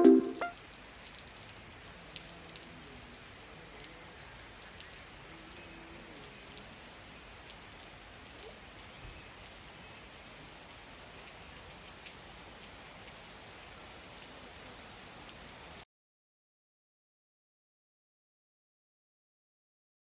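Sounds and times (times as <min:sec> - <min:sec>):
raindrops ticking on surfaces: 0:00.0 - 0:15.8
faint steady rain: 0:00.0 - 0:15.9.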